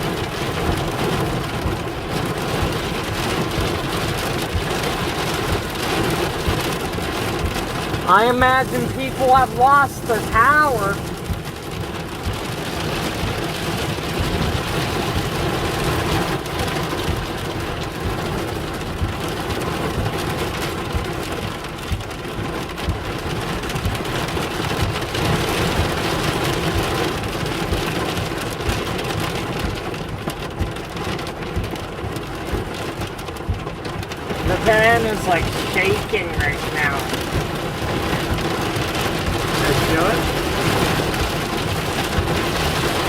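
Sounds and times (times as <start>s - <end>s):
heavy rain drumming on van roof: 0.0s - 43.0s.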